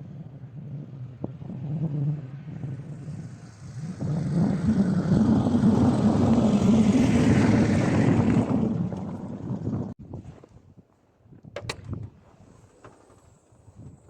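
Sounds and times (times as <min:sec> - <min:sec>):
vehicle driving by: 0:01.4 - 0:09.8.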